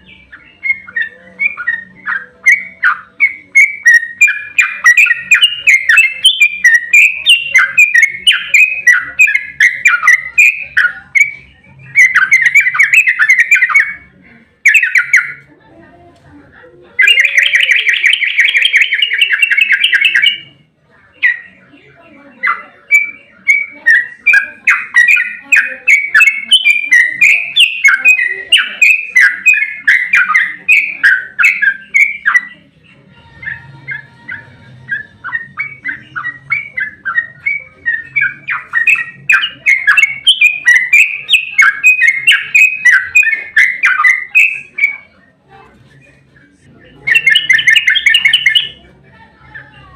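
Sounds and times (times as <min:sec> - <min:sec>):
bird bubbling chattering notes: 0:47.0 - 0:48.8.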